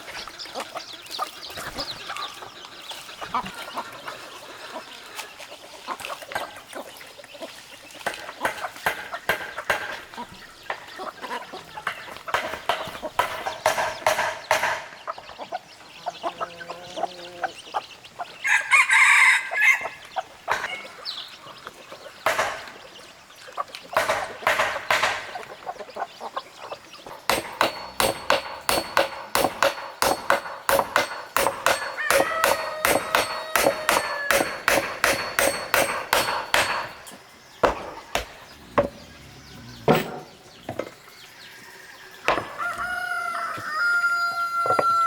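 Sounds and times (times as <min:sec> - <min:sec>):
chickens clucking: 0:00.0 - 0:45.0
sharp ringing knocks: 0:08.1 - 0:10.9, 0:11.8 - 0:15.0, 0:22.3 - 0:22.8, 0:24.0 - 0:25.4, 0:27.0 - 0:39.0, 0:42.3 - 0:42.6
rooster crowing: 0:18.4 - 0:20.0, 0:31.5 - 0:34.7, 0:41.6 - 0:45.0.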